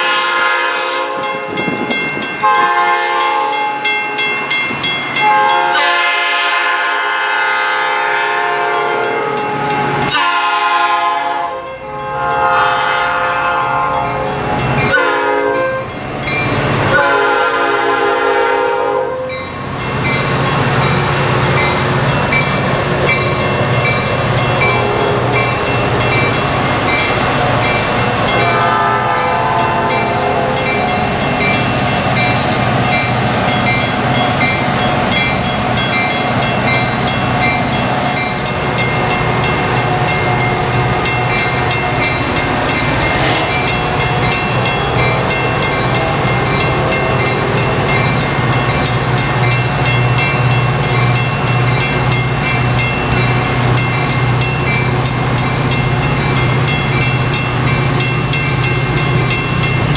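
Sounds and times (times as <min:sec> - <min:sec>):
train horn blast: 0:00.0 - 0:01.4, 0:02.4 - 0:03.7, 0:05.2 - 0:14.2, 0:14.9 - 0:15.9, 0:16.9 - 0:19.4, 0:28.2 - 0:31.2
diesel locomotive droning: 0:00.0 - 0:59.9.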